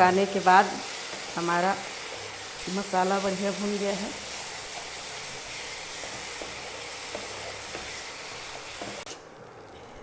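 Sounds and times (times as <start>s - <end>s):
sauce sizzling in oil: 0.0s - 10.0s
spatula scraping a pan: 4.2s - 9.2s.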